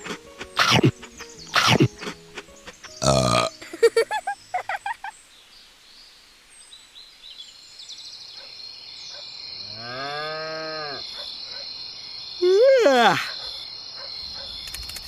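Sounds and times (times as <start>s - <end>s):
insects chirring: 7.1s - 15.0s
cow mooing: 9.7s - 11.0s.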